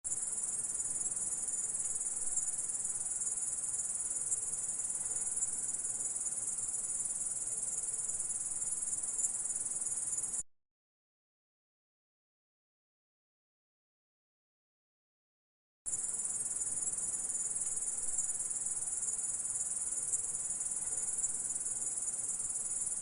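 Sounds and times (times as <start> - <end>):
grasshopper stridulating: 0.1 - 10.4, 15.9 - 23.0.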